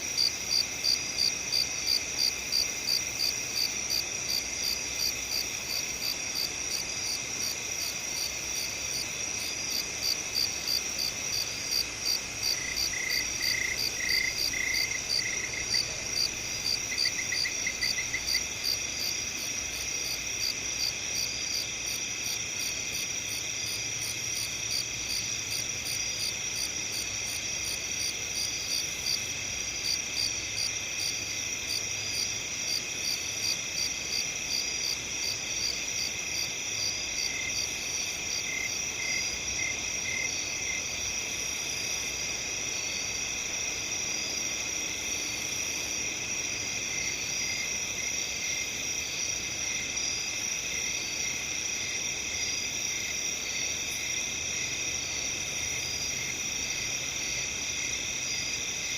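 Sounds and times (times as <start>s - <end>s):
crickets chirping: 0.0s - 58.9s.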